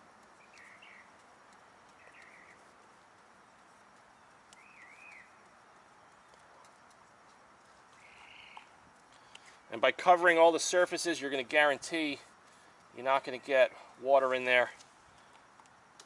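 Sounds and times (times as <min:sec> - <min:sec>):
faint bird chirps: 0:00.3 - 0:03.0, 0:03.6 - 0:07.0, 0:07.6 - 0:09.7.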